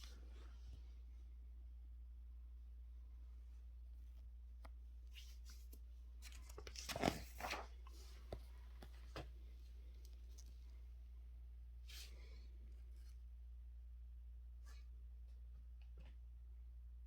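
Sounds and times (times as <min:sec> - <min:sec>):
faint low hum: 0:00.0 - 0:17.0
paper rustling and crinkling: 0:05.1 - 0:10.7.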